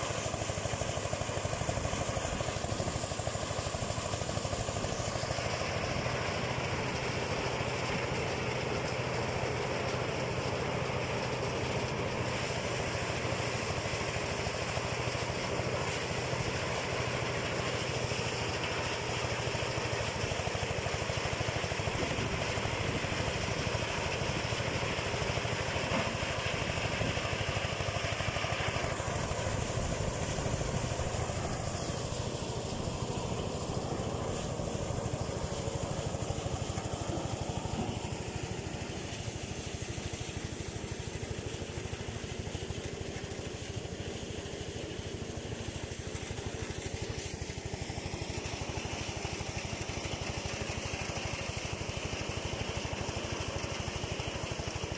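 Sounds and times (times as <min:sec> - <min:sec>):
thresher machine rushing: 0:00.0 - 0:39.8
small engine hum: 0:00.0 - 0:54.9.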